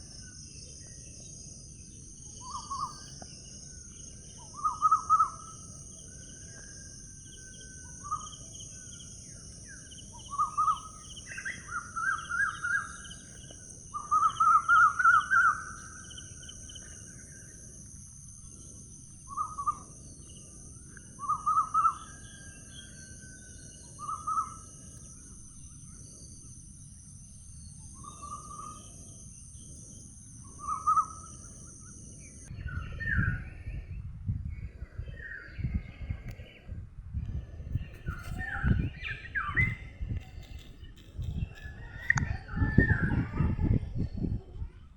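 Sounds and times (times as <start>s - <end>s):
high insect-like drone: 0.0s - 32.5s.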